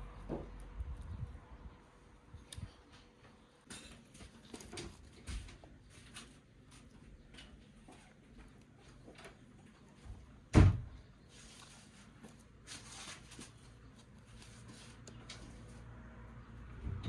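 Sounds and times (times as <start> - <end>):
rustling: 3.9 - 16.3.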